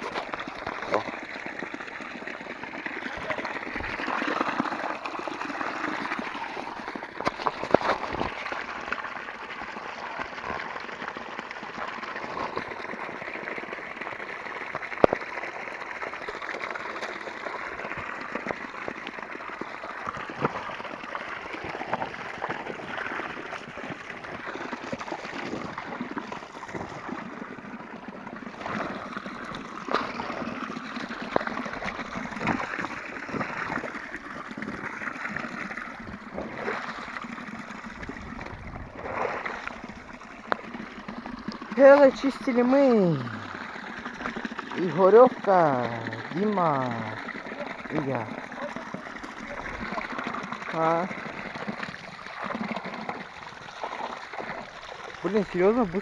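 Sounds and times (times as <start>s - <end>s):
stream water gurgling: 0.0s - 56.0s.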